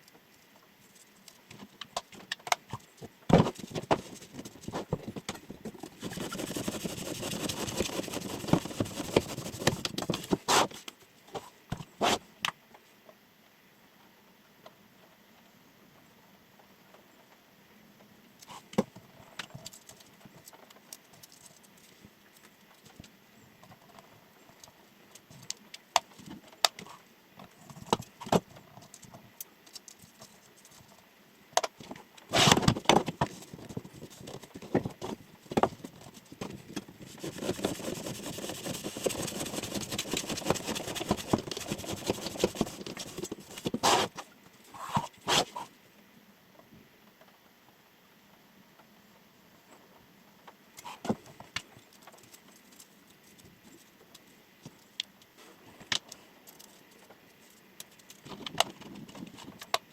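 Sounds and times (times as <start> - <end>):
rapid knife cutting strokes: 6.0 - 10.8, 37.1 - 44.1.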